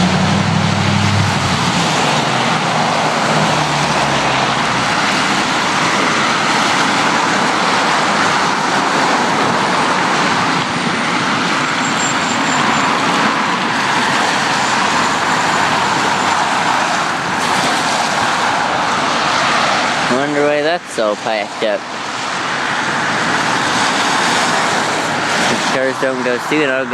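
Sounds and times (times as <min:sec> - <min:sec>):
road traffic passing: 0:00.0 - 0:26.9.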